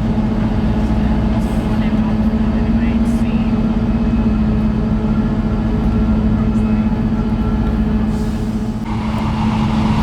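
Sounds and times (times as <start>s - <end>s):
train engine hum: 0.0s - 10.0s
train running gear rumble: 0.0s - 10.0s
loud rushing noise: 8.9s - 10.0s.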